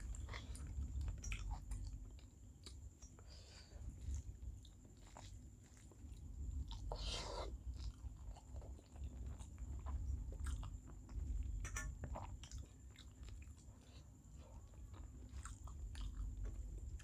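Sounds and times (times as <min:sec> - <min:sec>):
person chewing food: 0:00.0 - 0:17.0.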